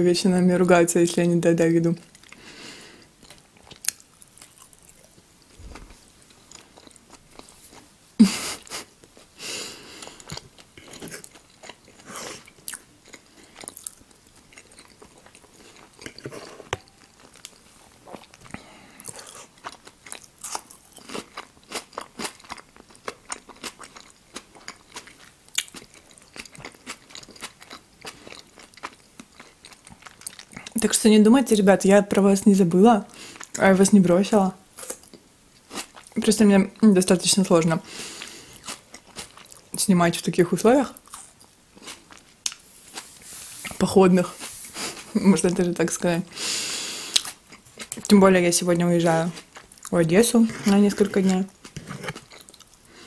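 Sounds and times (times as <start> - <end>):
person chewing soft food: 2.1 - 7.9, 8.5 - 30.8, 34.8 - 36.2, 37.9 - 39.8, 41.0 - 43.8, 46.4 - 48.1, 49.4 - 49.9, 51.4 - 53.0.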